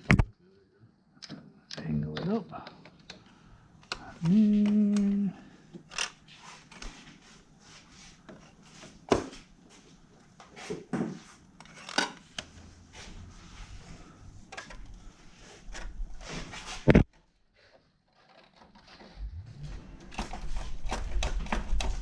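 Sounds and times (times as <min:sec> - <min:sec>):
light rubbing and shuffling: 0:12.5 - 0:17.0.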